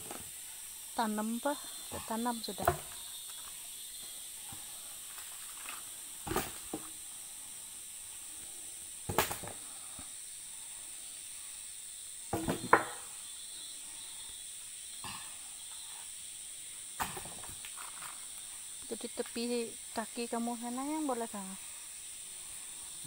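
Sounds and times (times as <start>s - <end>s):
steady high hiss: 0.0s - 23.0s
log knocking and scraping: 4.5s - 7.0s, 12.3s - 13.0s.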